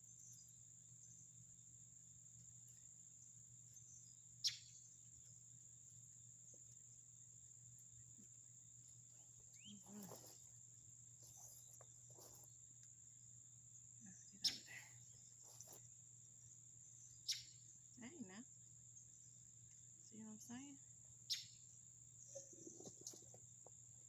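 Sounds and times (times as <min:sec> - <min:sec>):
crickets trilling: 0:00.0 - 0:24.0
rustling: 0:09.1 - 0:12.9, 0:15.3 - 0:15.9.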